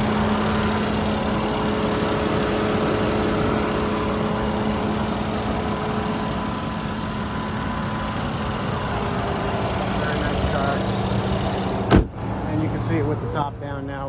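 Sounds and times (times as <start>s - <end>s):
car engine idling quietly: 0.0s - 14.0s.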